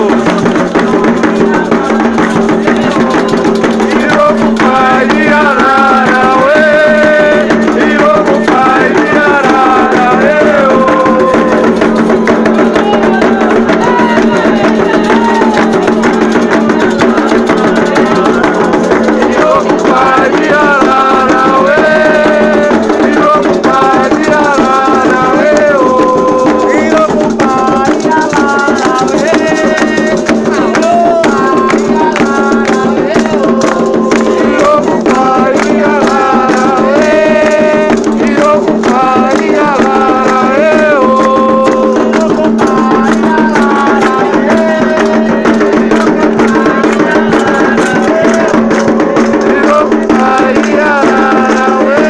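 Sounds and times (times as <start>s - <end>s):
drums playing: 0.0s - 52.0s
voices chanting together: 0.0s - 52.0s.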